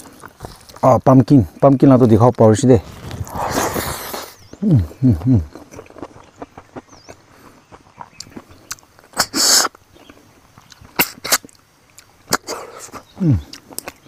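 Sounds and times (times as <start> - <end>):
person chewing crunchy food: 0.0 - 0.9, 2.8 - 14.0
mouth smacks: 3.2 - 6.2, 8.0 - 9.8, 10.6 - 14.0.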